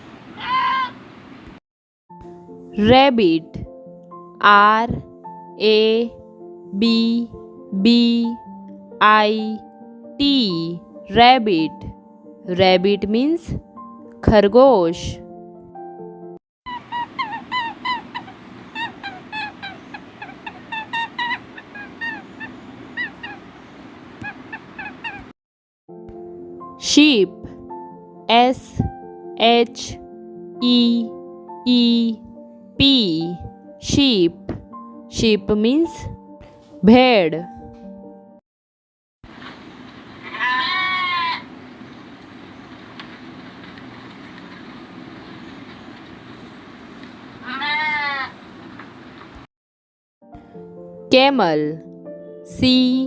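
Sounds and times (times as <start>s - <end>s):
flock of fowl calling: 0.4s - 1.0s, 16.7s - 25.3s, 40.2s - 41.6s, 47.4s - 48.4s
sheep bleating: 0.4s - 1.0s, 40.3s - 41.5s, 47.4s - 48.4s.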